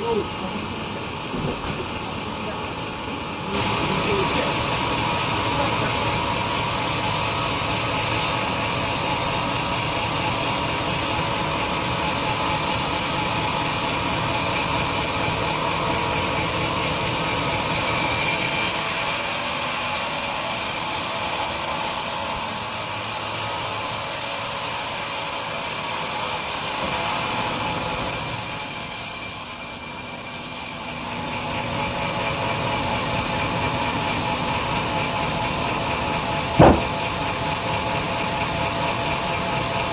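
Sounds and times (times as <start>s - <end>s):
bandsaw running: 35.5s - 37.1s.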